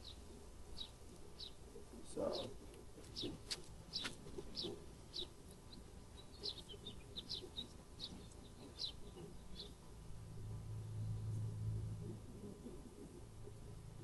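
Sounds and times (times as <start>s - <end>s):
small bird chirping: 0.0s - 14.0s.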